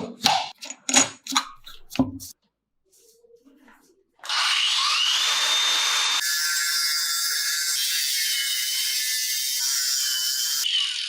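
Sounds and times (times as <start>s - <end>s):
power tool motor whining: 4.2s - 6.3s.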